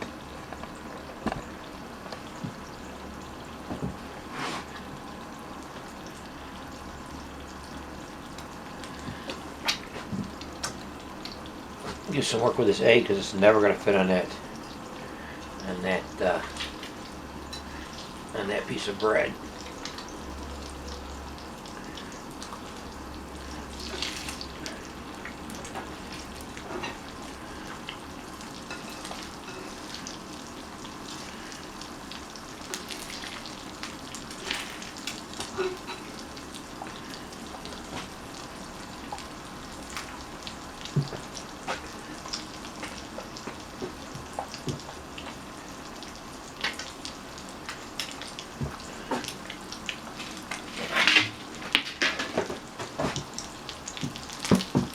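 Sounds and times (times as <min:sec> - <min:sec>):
egg sizzling in a pan: 0:00.0 - 0:54.9
utensil scraping a pan: 0:50.6 - 0:52.3.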